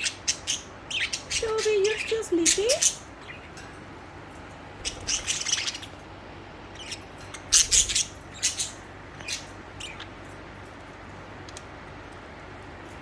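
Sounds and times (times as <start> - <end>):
budgerigars chirping: 0.0 - 3.6, 4.8 - 6.0, 6.7 - 10.1.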